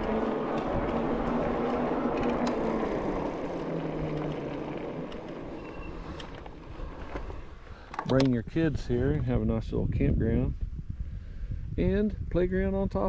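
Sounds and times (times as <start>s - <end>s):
vehicle engine driving away: 0.0s - 7.9s.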